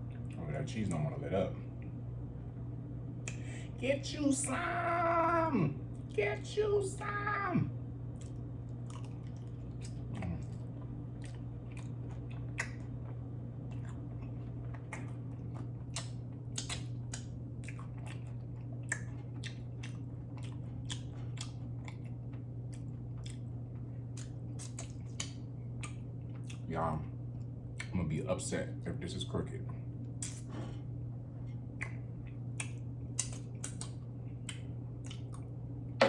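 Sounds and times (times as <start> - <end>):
steady low hum: 0.0 - 36.0
chewing with wet smacks: 8.1 - 28.2, 29.5 - 30.5, 31.4 - 35.7.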